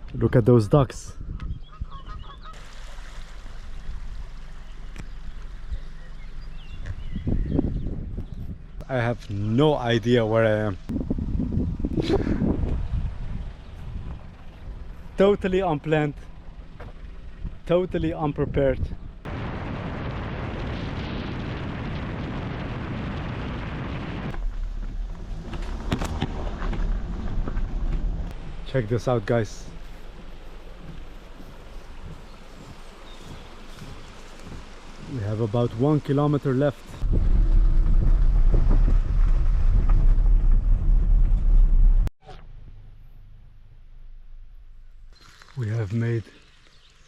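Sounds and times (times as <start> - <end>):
wind buffeting microphone: 0.8 - 2.6, 5.0 - 15.5, 16.4 - 36.0, 36.8 - 42.1
low rumble: 3.5 - 35.8, 36.8 - 45.2.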